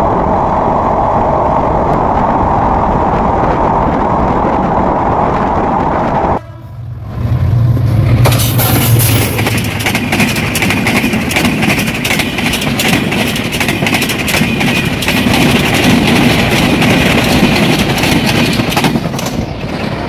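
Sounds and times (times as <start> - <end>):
locomotive engine drone: 0.0 - 20.0
wheels clattering over rail joints: 7.9 - 20.0.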